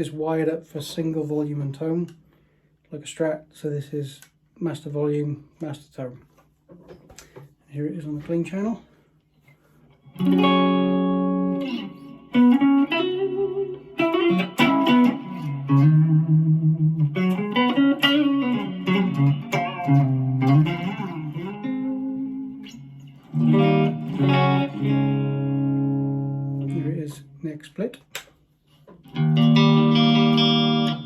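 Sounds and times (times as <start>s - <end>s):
clean electric guitar playing: 10.1s - 27.4s, 29.0s - 31.0s.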